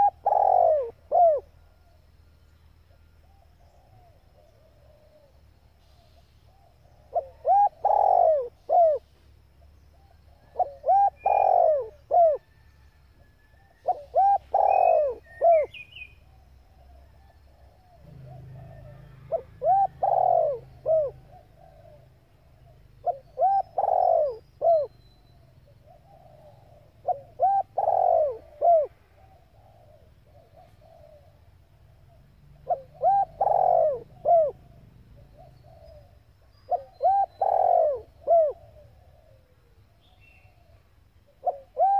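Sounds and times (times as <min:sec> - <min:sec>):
dove cooing: 0:00.0 - 0:02.0, 0:03.0 - 0:41.9
small bird chirps: 0:13.3 - 0:18.5, 0:29.4 - 0:39.0.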